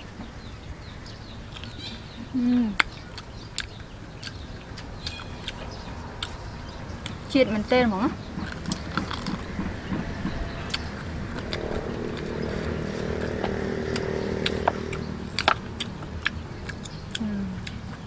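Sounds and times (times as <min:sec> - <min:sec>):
person chewing: 0:01.5 - 0:01.8, 0:02.8 - 0:06.4, 0:08.3 - 0:09.6, 0:10.7 - 0:18.0
small engine running: 0:08.4 - 0:16.9.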